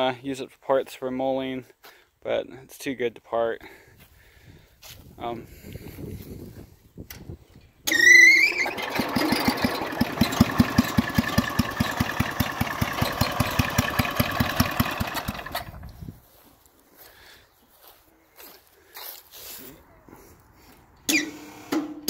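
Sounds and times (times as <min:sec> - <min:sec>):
electric starter whining: 0:07.8 - 0:16.0
tractor engine running: 0:07.9 - 0:16.3.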